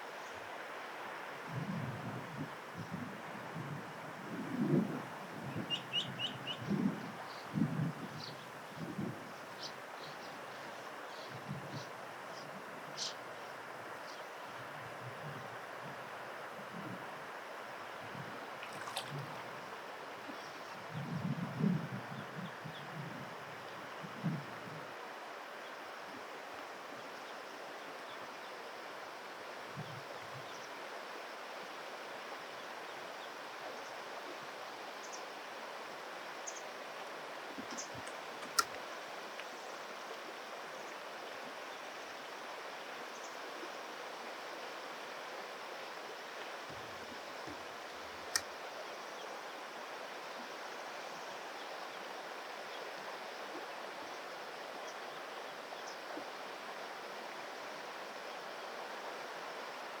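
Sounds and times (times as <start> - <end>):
river water rushing: 18.5 - 20.2.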